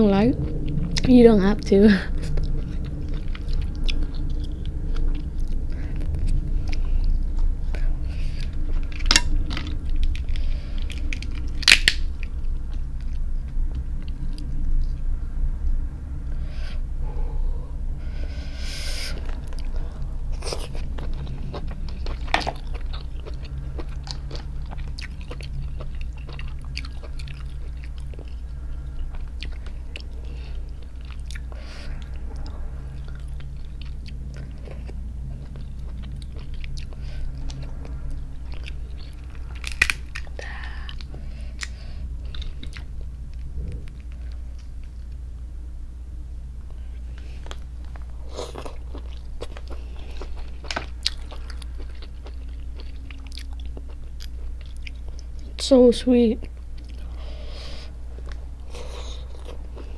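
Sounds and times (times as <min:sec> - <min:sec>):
chewing: 0:02.2 - 0:15.0, 0:19.1 - 0:44.9, 0:46.7 - 0:55.5, 0:56.4 - 0:57.3, 0:58.1 - 0:59.9
crab shell snapping: 0:11.6 - 0:12.0, 0:39.6 - 0:40.2.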